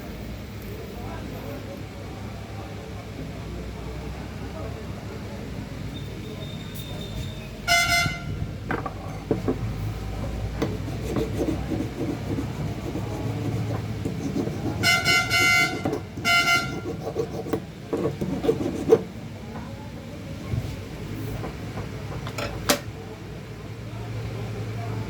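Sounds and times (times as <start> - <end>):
horn honking: 7.7 - 8.4, 14.8 - 16.9.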